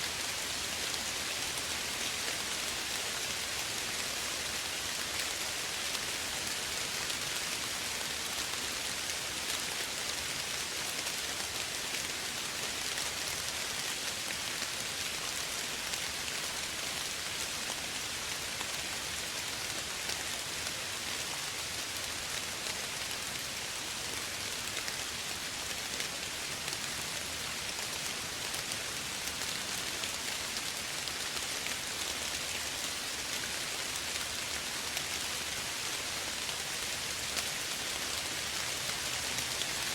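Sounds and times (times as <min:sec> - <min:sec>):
soft rain pattering: 0:00.0 - 0:39.9.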